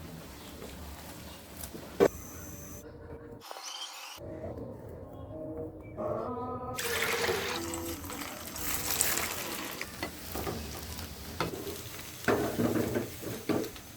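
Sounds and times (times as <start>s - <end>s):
meat sizzling in hot oil: 6.8s - 13.9s.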